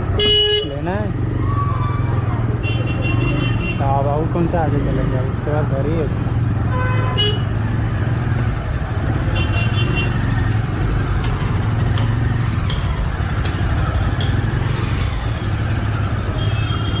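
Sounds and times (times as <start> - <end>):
wind and road noise: 0.0 - 17.0
motorcycle engine running: 5.6 - 17.0.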